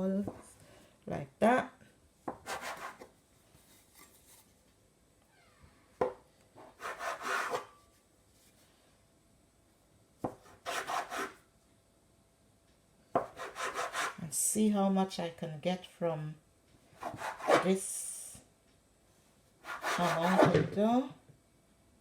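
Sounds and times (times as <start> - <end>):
knife scraping dough: 2.4 - 3.1, 6.6 - 7.8, 10.4 - 11.4, 13.2 - 14.2, 17.0 - 17.8, 19.6 - 20.6.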